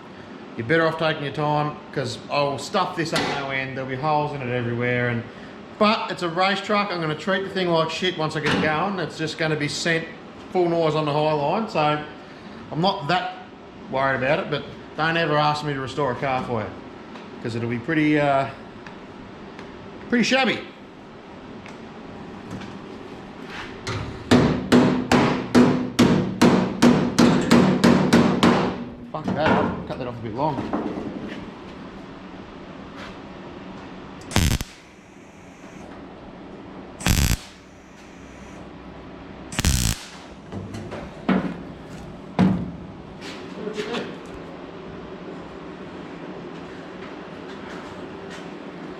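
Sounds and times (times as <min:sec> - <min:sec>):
knocks on sheet metal: 0:24.3 - 0:28.8
welding bursts: 0:34.3 - 0:35.8, 0:37.0 - 0:38.6, 0:39.5 - 0:40.4.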